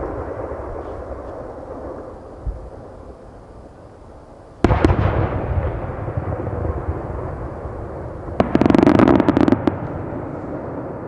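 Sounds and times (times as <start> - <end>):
rapid firework crackling: 0.0 - 11.0
firework shells bursting: 7.6 - 10.8.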